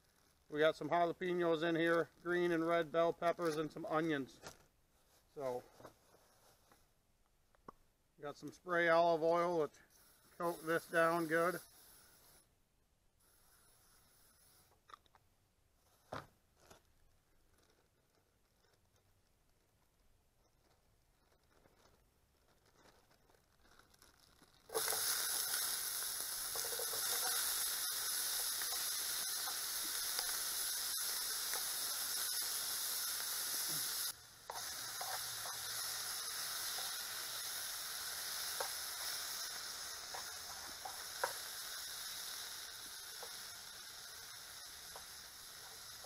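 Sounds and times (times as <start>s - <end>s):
food sizzling in a frying pan: 10.0s - 12.4s, 24.7s - 46.0s.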